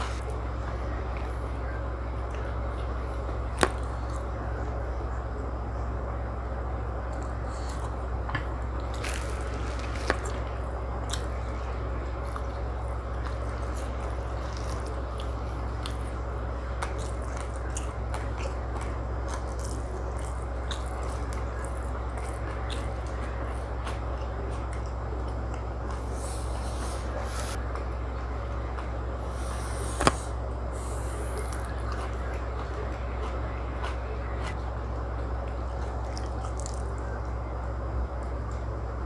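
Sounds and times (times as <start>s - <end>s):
person chewing food: 0.0s - 4.4s, 7.1s - 37.4s
steady low hum: 0.0s - 39.0s
wet mouth clicks and smacks: 29.3s - 32.1s, 36.0s - 37.0s.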